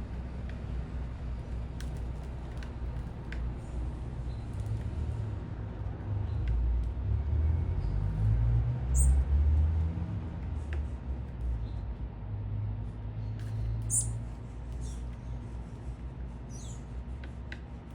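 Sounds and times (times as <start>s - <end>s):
distant traffic rumble: 0.0s - 17.9s
bird chirp: 8.9s - 9.2s, 13.2s - 14.2s, 16.5s - 16.8s.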